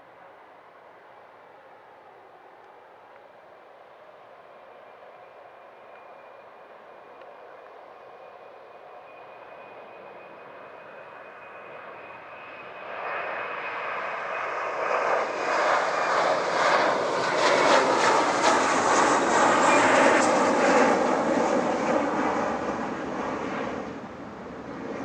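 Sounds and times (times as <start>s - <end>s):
jet airliner engines passing: 6.2s - 25.0s.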